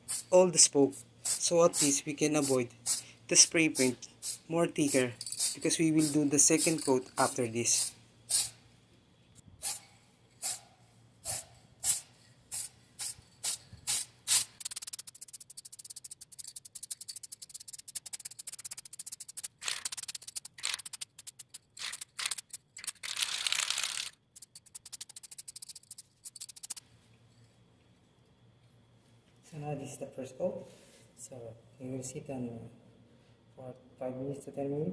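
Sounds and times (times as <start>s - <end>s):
spray paint can hissing: 0.0s - 0.3s, 1.2s - 8.6s, 9.6s - 26.8s.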